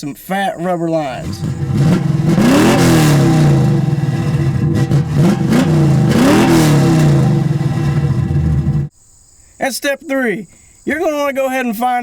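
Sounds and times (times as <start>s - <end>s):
car engine revving: 1.1s - 8.9s.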